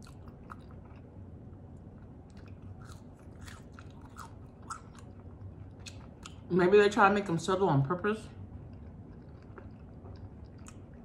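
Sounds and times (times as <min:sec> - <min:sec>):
chewing crunchy food: 0:00.0 - 0:06.5, 0:08.4 - 0:11.0.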